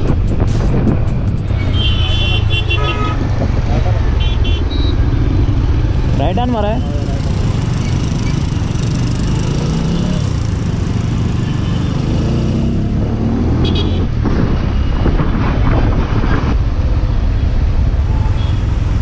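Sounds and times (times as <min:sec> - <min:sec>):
surrounding traffic: 0:00.0 - 0:19.0
motorcycle engine revving: 0:02.8 - 0:14.8.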